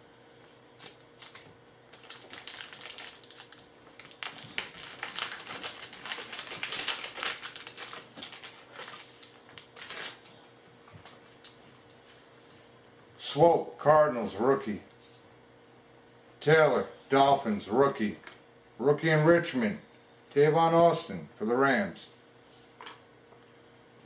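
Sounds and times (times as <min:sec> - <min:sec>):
wrapper crinkling and rustling: 0:00.8 - 0:10.4.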